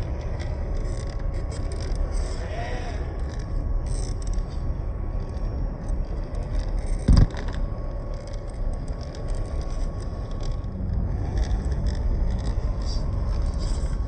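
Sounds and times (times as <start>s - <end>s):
electric motor whining: 0.0s - 14.0s
wind rumble on microphone: 0.0s - 14.0s.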